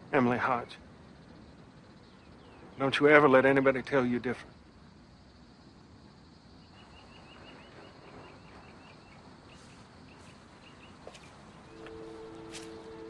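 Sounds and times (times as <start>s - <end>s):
bird chirping: 0.2s - 5.4s, 6.2s - 13.0s
low held music notes: 11.6s - 13.0s.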